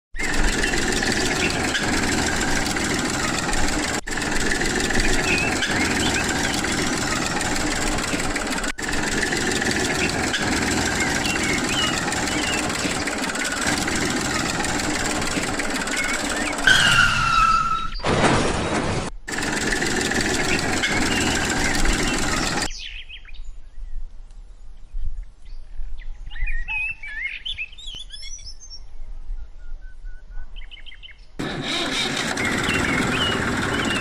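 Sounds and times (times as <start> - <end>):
small motor running: 0.2 - 16.8, 19.3 - 22.7, 31.4 - 34.0.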